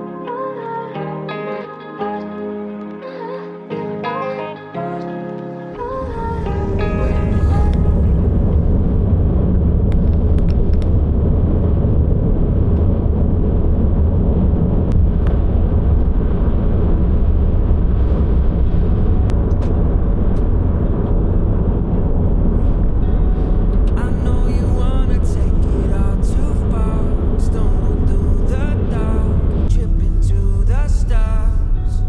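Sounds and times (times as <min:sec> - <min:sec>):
vehicle engine and road noise: 0:07.2 - 0:24.4.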